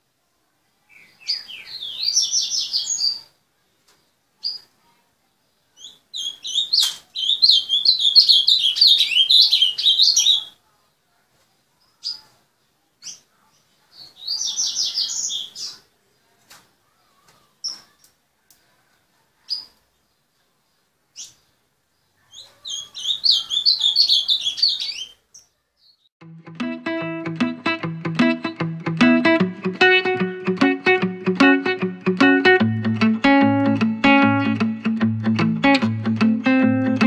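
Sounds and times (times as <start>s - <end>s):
bird singing warbled notes: 26.4s - 37.0s.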